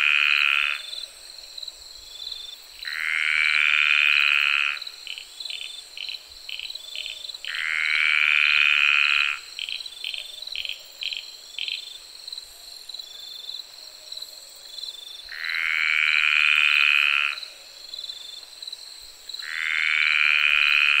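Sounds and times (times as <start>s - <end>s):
frogs calling: 0.0s - 1.2s, 2.8s - 11.9s, 15.2s - 17.7s, 19.3s - 21.0s
crickets droning: 0.0s - 21.0s.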